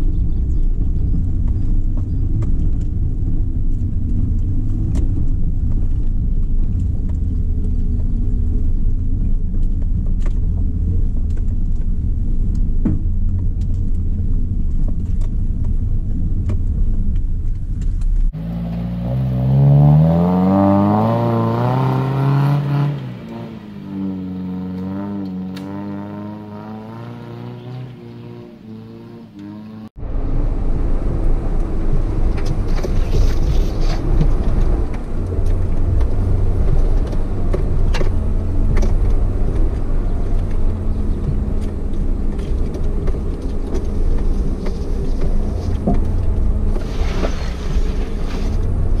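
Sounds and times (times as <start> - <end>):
engine rumble inside cabin: 0.0 - 18.9, 29.9 - 49.0
engine revving: 18.3 - 49.0.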